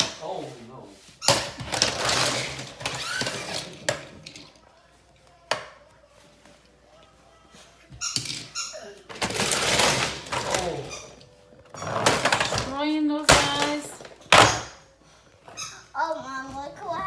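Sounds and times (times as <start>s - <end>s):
child's voice: 15.7s - 17.0s.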